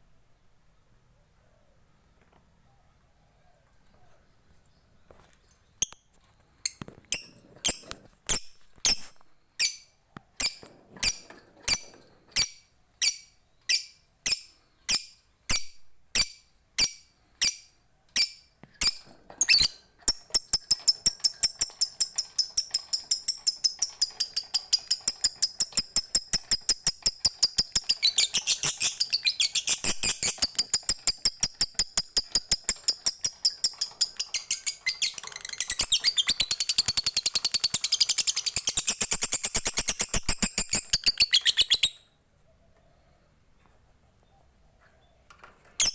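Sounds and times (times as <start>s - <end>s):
lovebird chirping and chattering: 9.6s - 42.0s.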